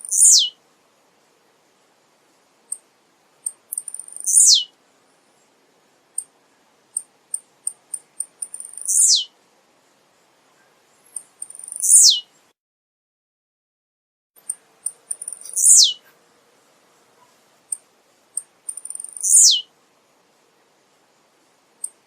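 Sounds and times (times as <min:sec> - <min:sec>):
bird singing: 0:00.0 - 0:00.6, 0:03.5 - 0:04.8, 0:06.9 - 0:09.3, 0:10.6 - 0:12.5, 0:14.4 - 0:16.1, 0:17.2 - 0:19.7.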